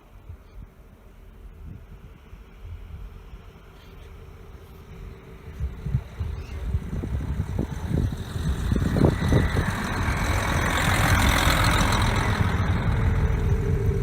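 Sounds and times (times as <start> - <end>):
train hiss: 0.0 - 14.0
train rumbling: 0.0 - 14.0.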